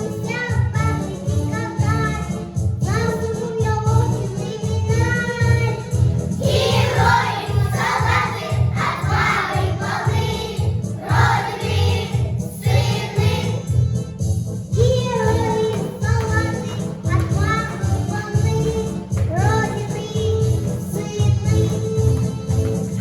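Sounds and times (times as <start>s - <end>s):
backing track with steady beat: 0.0s - 23.0s
children singing in chorus: 6.4s - 13.6s.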